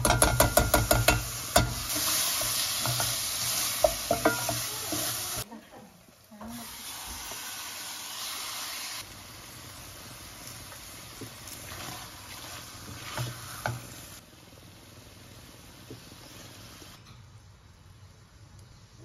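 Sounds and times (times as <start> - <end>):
wooden spoon knocking pot: 0.0 - 1.8, 3.8 - 4.7
chicken sizzling in hot oil: 0.0 - 5.5, 6.2 - 17.0.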